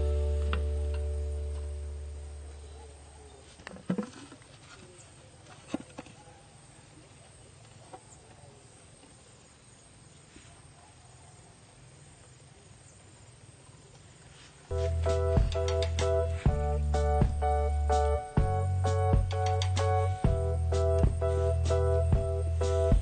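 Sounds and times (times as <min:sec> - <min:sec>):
background music: 0:00.0 - 0:02.4, 0:14.7 - 0:23.0.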